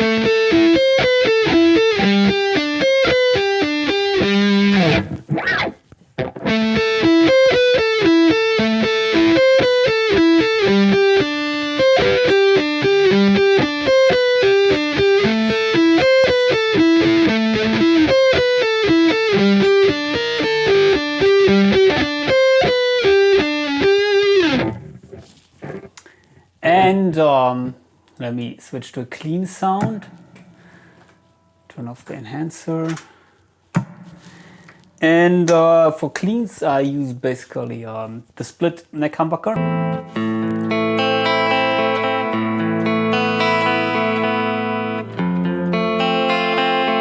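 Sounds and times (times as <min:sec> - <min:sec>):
distorted electric guitar lead: 0:00.0 - 0:25.9, 0:39.6 - 0:47.0.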